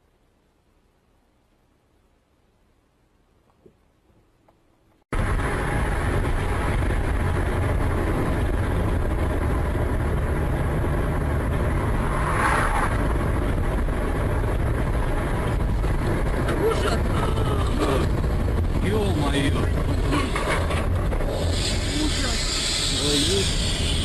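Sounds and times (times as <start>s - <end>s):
road noise: 0.0s - 24.0s
vehicle engine: 4.9s - 24.0s.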